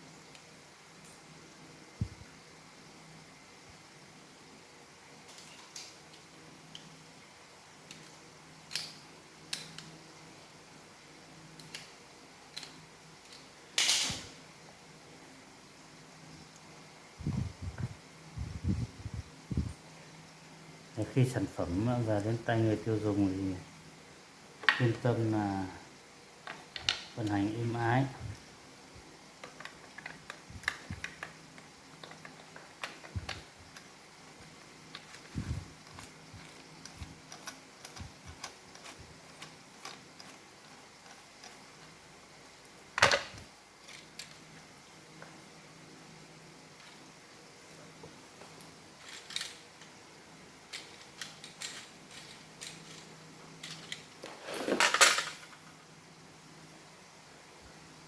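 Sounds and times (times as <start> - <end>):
plastic parts clicking and tapping: 29.4 - 41.6, 49.0 - 49.9, 50.7 - 55.5.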